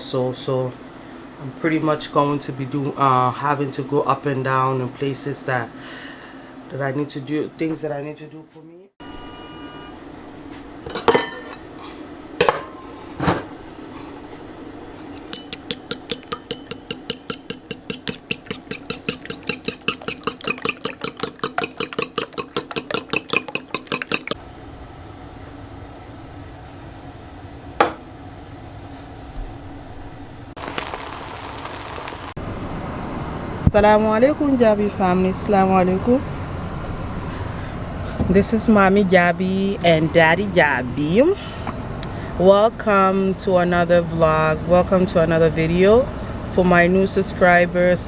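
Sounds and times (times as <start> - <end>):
dishes clattering: 10.9 - 11.6, 12.4 - 13.6, 15.2 - 24.4
utensil striking bowl: 15.3 - 24.4.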